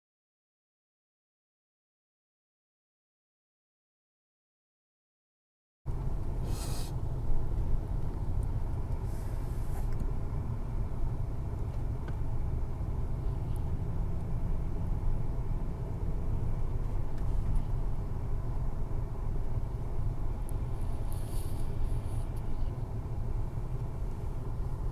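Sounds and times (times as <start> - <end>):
brief hisses: 6.4 - 7.0, 21.1 - 22.2.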